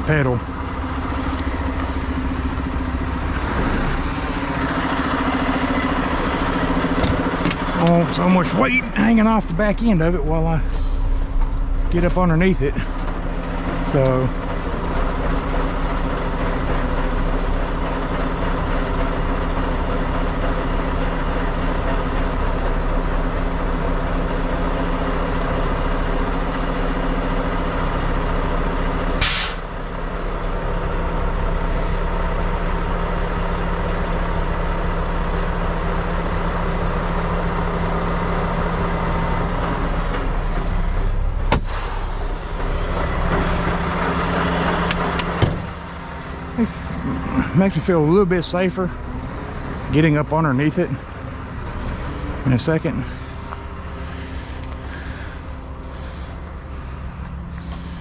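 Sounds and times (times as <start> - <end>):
diesel truck engine idling: 0.0 - 58.0
air brake hiss: 10.7 - 11.2, 29.2 - 29.8, 41.6 - 42.6.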